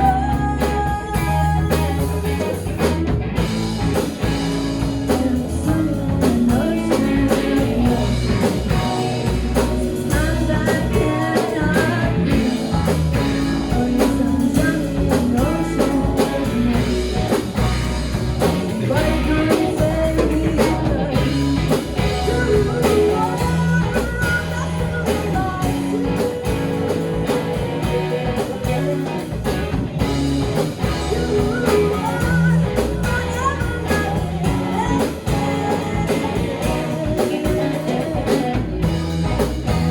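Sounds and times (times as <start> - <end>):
drum kit: 0.0 - 39.9
electric guitar: 0.0 - 39.9
live rock band playing: 0.0 - 39.9.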